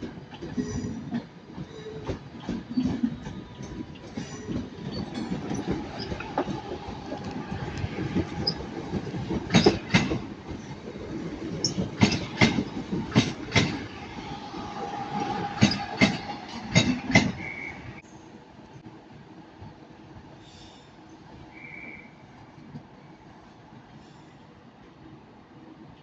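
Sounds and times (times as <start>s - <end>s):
train wheels clicking over rail joints: 0.0s - 14.0s, 15.1s - 17.7s
train rumble: 0.0s - 26.0s.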